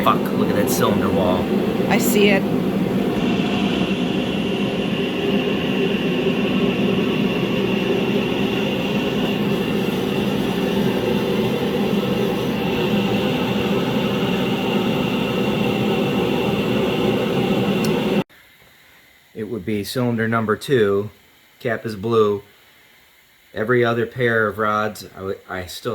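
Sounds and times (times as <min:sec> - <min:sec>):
high whine: 0:00.0 - 0:18.2
mechanical drone: 0:00.0 - 0:18.2.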